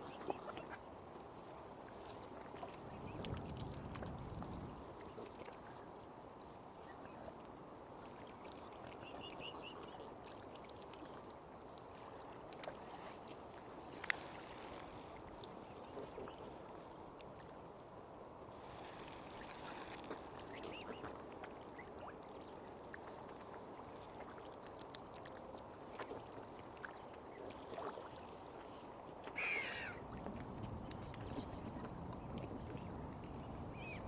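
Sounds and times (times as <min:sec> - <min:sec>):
water washing on shore: 0:18.6 - 0:23.2
waterfowl call: 0:29.3 - 0:30.0
small birds chirping: 0:30.6 - 0:34.0.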